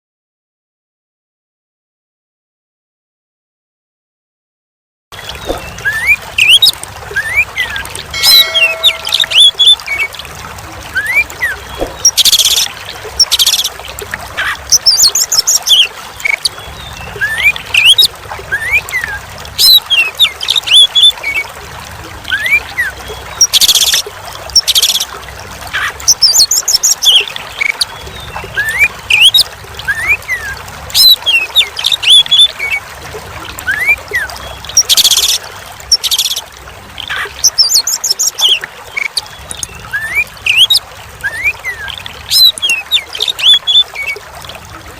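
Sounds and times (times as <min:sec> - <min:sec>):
songbird whistles and trills: 0:05.2 - 0:10.1, 0:14.7 - 0:21.4, 0:25.8 - 0:32.8, 0:37.1 - 0:44.2
trickle of running water: 0:05.2 - 0:44.9.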